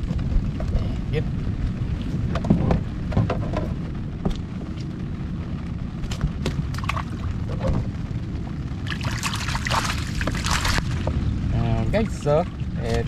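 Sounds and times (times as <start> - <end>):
wind rumbling on microphone: 0.0 - 13.0
water splashing off net: 8.9 - 11.0.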